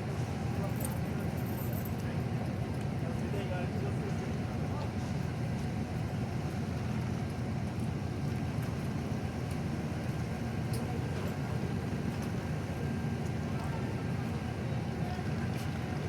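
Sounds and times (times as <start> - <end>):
train engine rumbling: 0.0 - 16.0.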